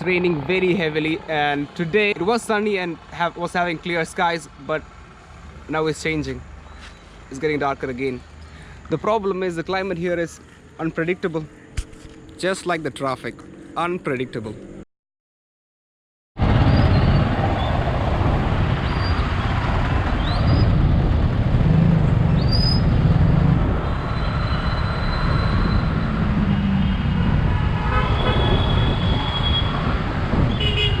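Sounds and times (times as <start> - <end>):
traffic engines rumbling: 0.0 - 14.8, 16.4 - 31.0
vehicle horns honking: 27.8 - 29.8, 30.4 - 31.0.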